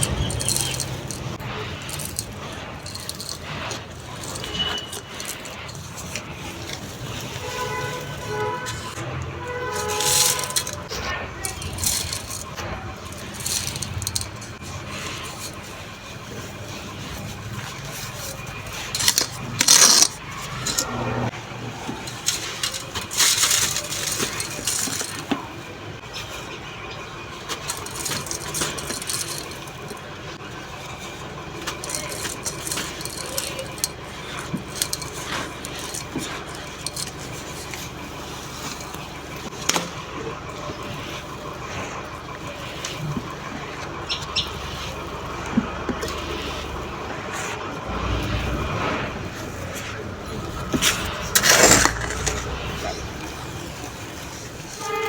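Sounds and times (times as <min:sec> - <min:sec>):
sand crumbling onto a clay pot: 0:50.4 - 0:53.2.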